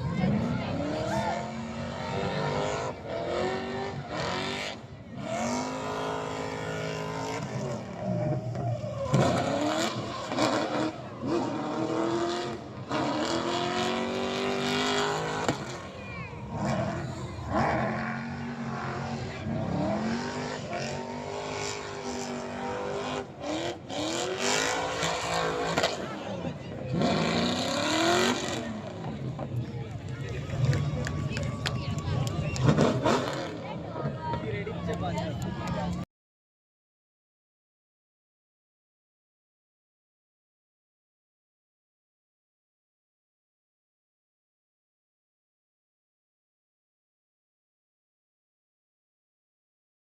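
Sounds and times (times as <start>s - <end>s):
car engines revving: 0.0s - 36.0s.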